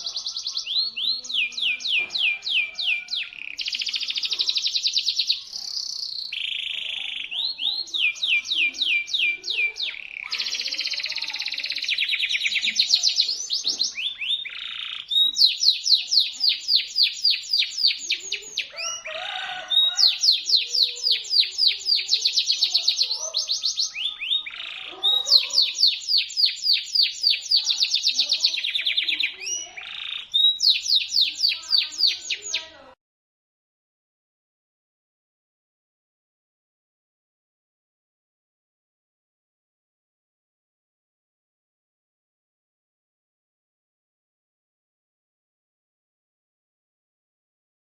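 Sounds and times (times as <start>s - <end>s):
canary singing: 0.0s - 33.0s.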